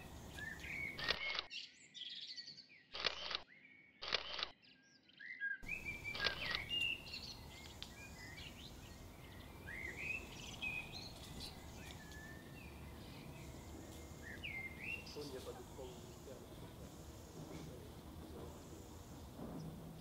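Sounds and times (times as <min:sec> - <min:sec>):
outdoor background hiss: 0:00.0 - 0:01.2, 0:05.6 - 0:20.0
birds chirping and whistling: 0:00.0 - 0:02.9, 0:04.6 - 0:17.5.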